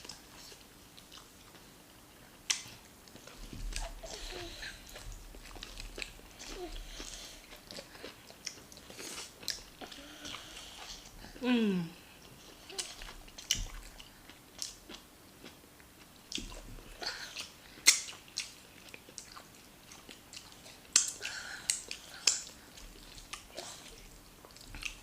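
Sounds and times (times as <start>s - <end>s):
food being chewed: 0.0s - 11.3s, 12.2s - 25.0s.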